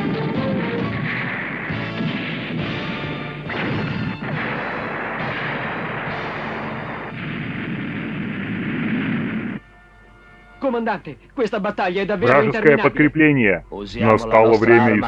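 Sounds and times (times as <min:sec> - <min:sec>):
dramatic soundtrack music: 0:00.0 - 0:08.5
cartoon blasts and explosions: 0:00.0 - 0:09.6.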